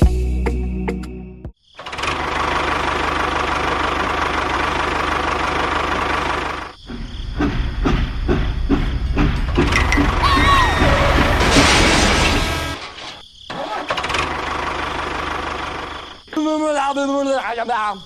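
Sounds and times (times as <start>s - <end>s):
knocks and clatter: 6.8s - 13.2s.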